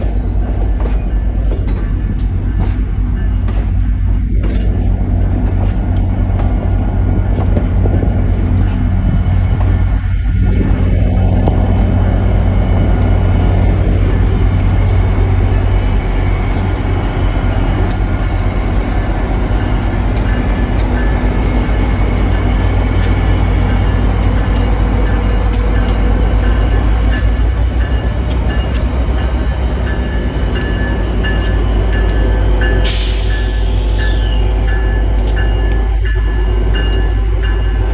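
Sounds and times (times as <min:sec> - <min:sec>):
diesel locomotive engine drone: 0:00.0 - 0:37.9
train wheels clicking on rails: 0:00.0 - 0:37.9.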